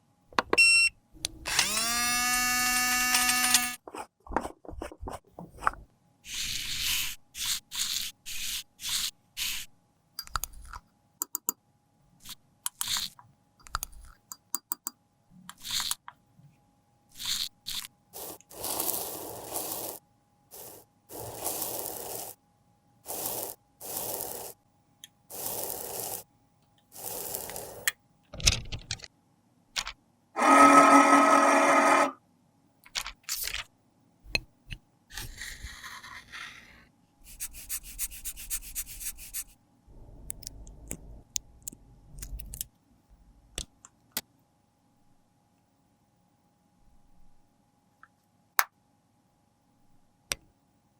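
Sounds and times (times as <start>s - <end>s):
powder being scraped: 3.2s - 9.7s, 17.1s - 22.4s, 23.0s - 24.6s, 25.3s - 26.3s, 26.9s - 27.9s, 35.1s - 39.6s.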